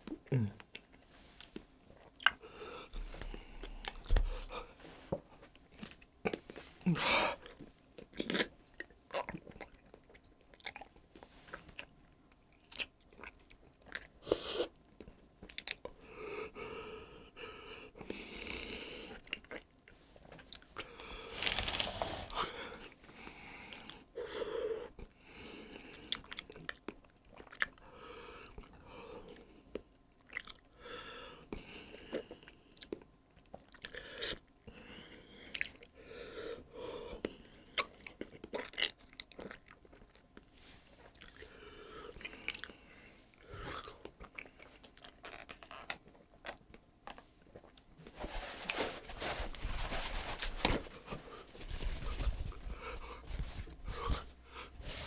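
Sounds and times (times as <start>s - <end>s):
person chewing and crunching food: 5.7s - 14.2s, 26.0s - 27.8s, 28.6s - 30.7s, 31.9s - 34.4s, 37.2s - 55.0s.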